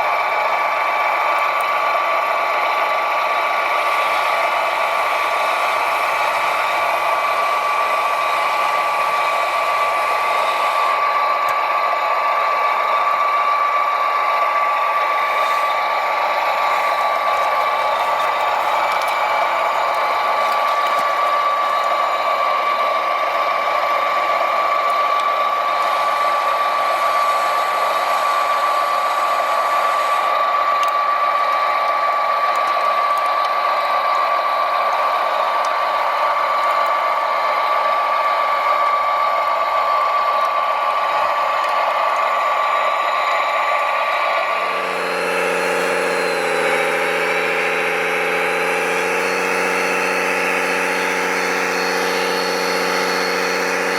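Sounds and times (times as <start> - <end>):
electric motor high-pitched whine: 0.0 - 53.9
low engine-like drone: 0.0 - 53.9.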